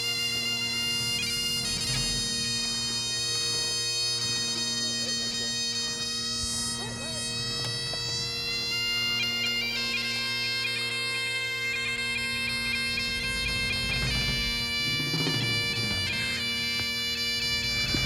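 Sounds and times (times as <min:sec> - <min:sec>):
steady drone: 0:00.0 - 0:18.0.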